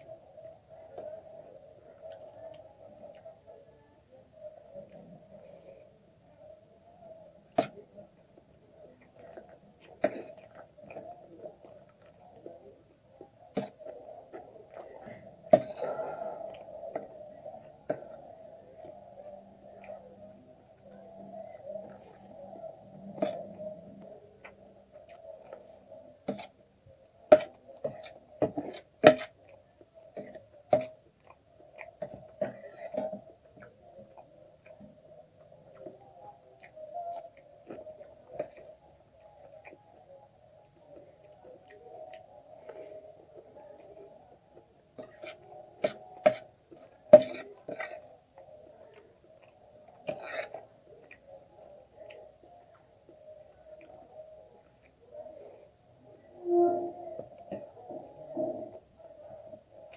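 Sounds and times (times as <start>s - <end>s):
slurping: 47.2s - 48.1s.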